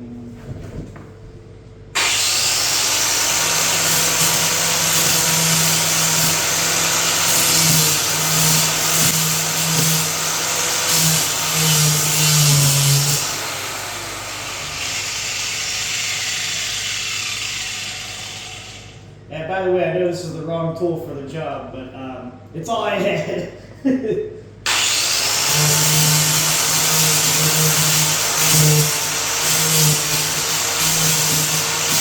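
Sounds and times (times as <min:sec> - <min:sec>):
angle grinder sanding floor: 0:02.0 - 0:19.0, 0:24.7 - 0:32.0.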